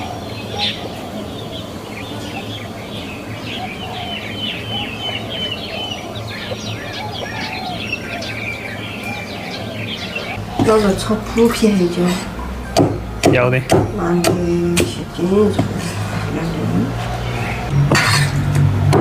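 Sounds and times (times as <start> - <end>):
ducklings peeping: 0.0 - 11.5
steady low hum: 0.0 - 19.0.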